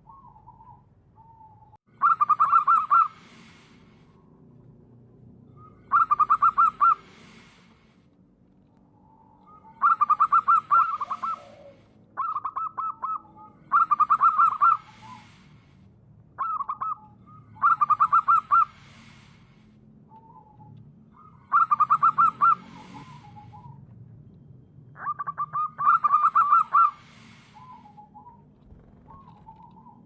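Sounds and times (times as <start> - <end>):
dove cooing song: 0.0 - 3.6, 5.6 - 7.6, 9.4 - 15.4, 16.4 - 18.8, 21.4 - 23.8, 25.0 - 30.0.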